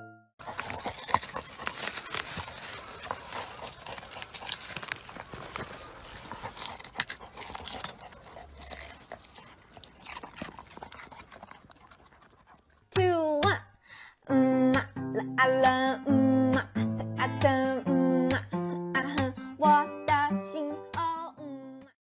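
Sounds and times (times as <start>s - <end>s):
dog scratching in soil and leaves: 0.4s - 12.8s.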